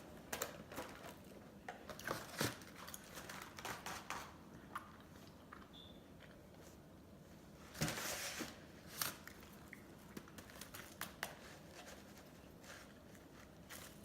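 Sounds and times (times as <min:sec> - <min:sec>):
chewing: 0:09.2 - 0:10.2.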